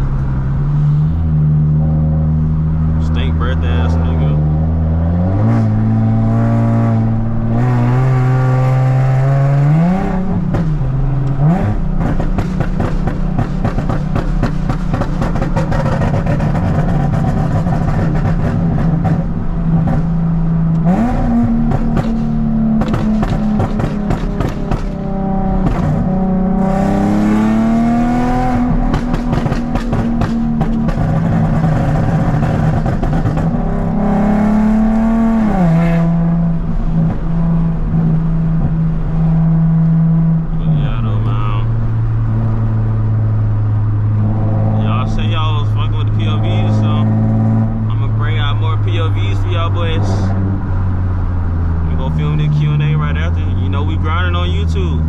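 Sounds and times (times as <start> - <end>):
car exhaust revving: 0.0 - 55.0
exhaust crackling pops: 10.4 - 26.6, 28.5 - 33.9.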